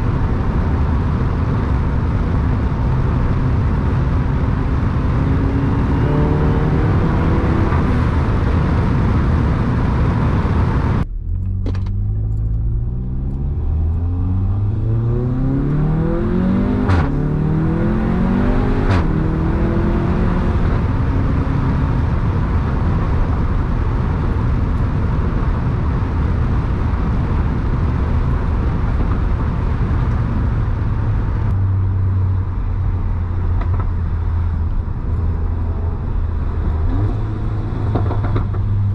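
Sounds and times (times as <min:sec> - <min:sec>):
car engine accelerating: 0:00.0 - 0:38.9
exhaust cracks: 0:33.3 - 0:38.9.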